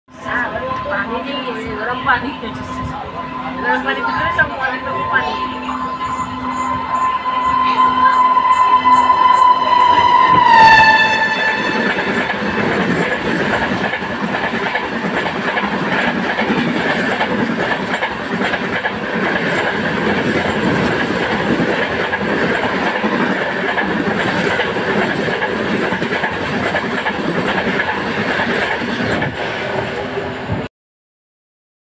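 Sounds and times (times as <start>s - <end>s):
train wheels rumbling on rails: 0.1s - 30.7s
train horn: 3.0s - 12.6s.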